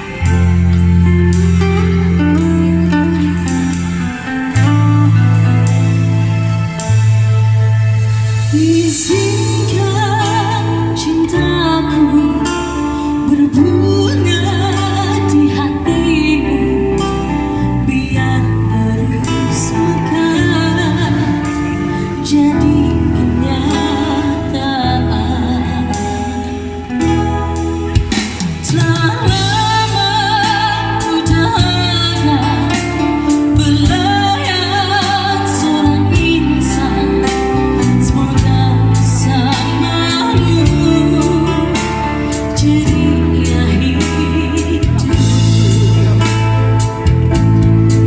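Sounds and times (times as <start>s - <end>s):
bass notes: 0.0s - 48.0s
guitar: 0.0s - 48.0s
woman singing with vibrato: 8.4s - 27.1s, 28.6s - 46.4s.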